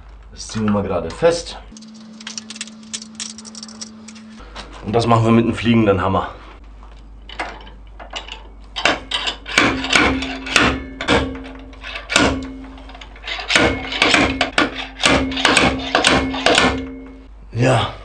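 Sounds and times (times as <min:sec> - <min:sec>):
slide hammer striking metal: 0:08.8 - 0:12.6, 0:13.4 - 0:17.2.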